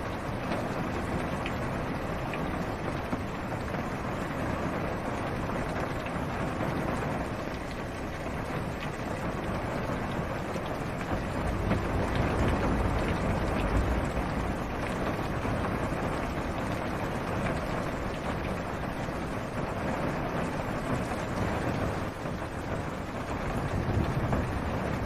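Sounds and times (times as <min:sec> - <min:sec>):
rain on car roof: 0:00.0 - 0:25.0
distant thunder rumble: 0:09.5 - 0:17.8, 0:22.2 - 0:25.0.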